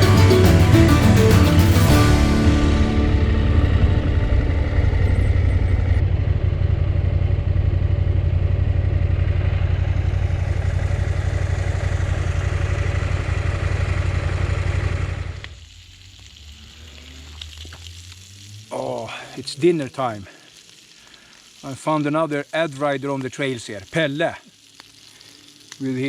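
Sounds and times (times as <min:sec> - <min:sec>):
motorcycle engine running: 0:00.0 - 0:15.6.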